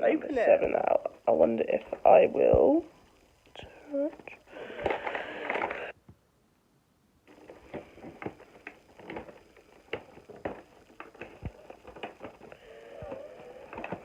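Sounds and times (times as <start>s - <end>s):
cardboard calendar clicks and rustles: 7.3s - 14.0s.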